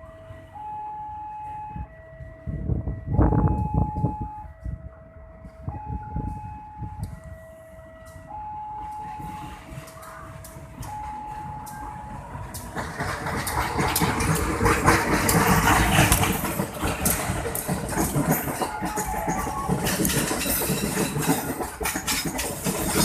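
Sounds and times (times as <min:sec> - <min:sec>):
two-tone electronic warning alarm: 0:00.0 - 0:12.5
approaching train: 0:00.0 - 0:23.0.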